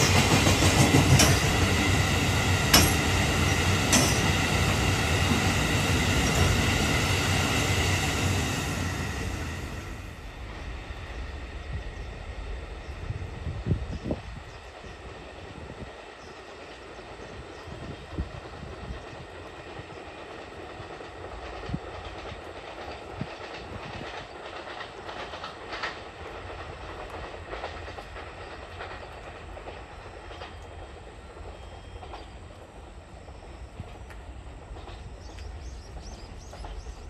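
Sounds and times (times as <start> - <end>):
wheels clacking over rail joints: 0.0 - 7.4, 20.5 - 37.0
train wheels rumbling on rail: 0.0 - 37.0.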